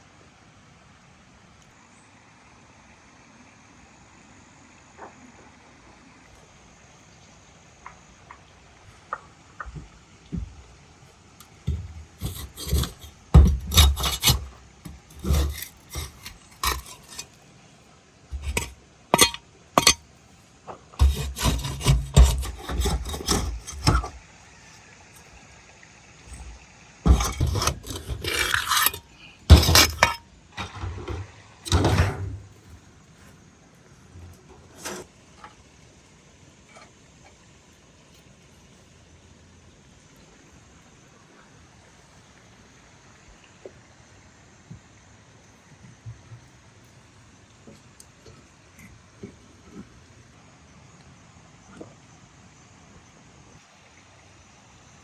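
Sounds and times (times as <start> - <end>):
rough scraping and rubbing: 11.4 - 17.4, 18.3 - 20.0, 21.0 - 24.2, 26.3 - 33.4, 34.0 - 35.1.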